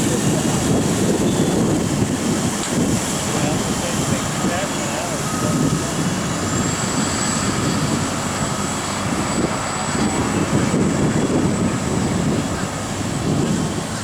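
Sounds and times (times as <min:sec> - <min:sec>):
diesel engine rumbling: 0:00.0 - 0:14.0.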